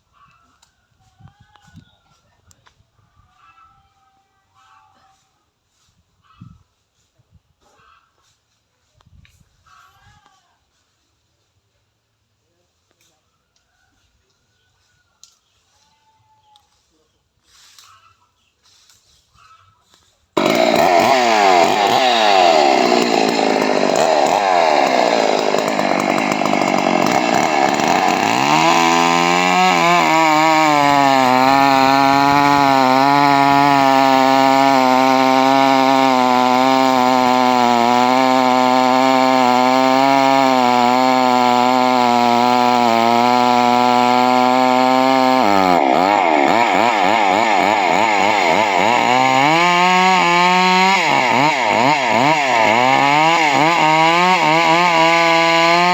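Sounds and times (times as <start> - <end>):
chainsaw cutting into tree: 20.4 - 55.9.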